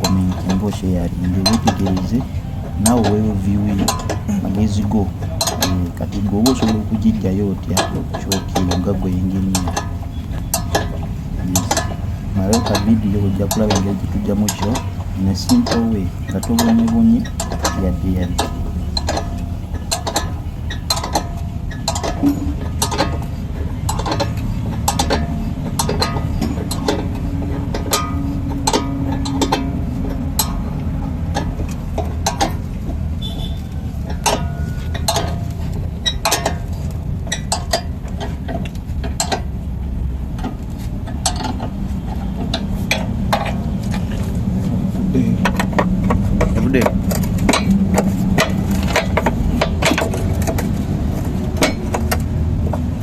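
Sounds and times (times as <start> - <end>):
hand tools clinking on metal: 0.0 - 30.8
steady low hum: 0.0 - 38.2.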